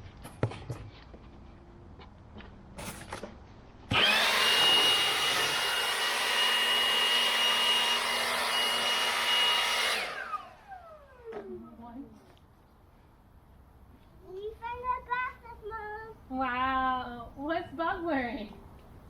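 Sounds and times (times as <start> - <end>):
leaf blower running: 3.9 - 11.6.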